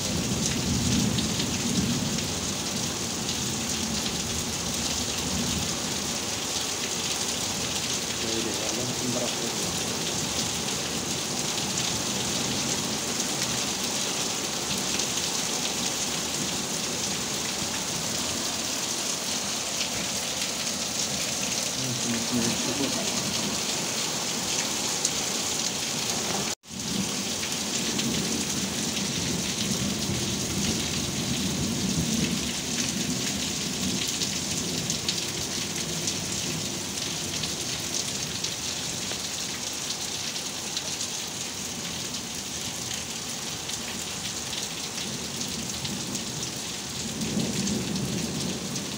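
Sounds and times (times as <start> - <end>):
heavy rain pouring: 0.0 - 48.9.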